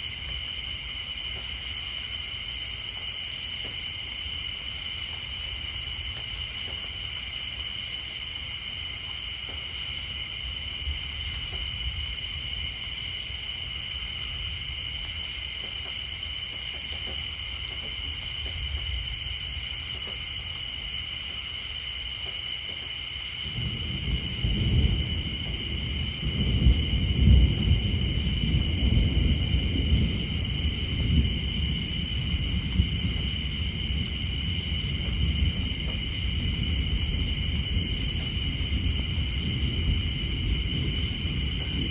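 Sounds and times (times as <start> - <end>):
insects and tree frogs chorus: 0.0 - 41.9
distant thunder rumble: 23.4 - 41.9.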